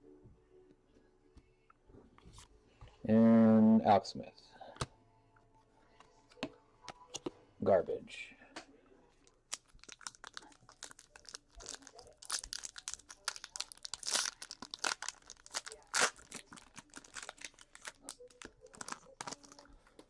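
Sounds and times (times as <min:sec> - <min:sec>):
card pack wrapper tearing: 0:09.5 - 0:19.8.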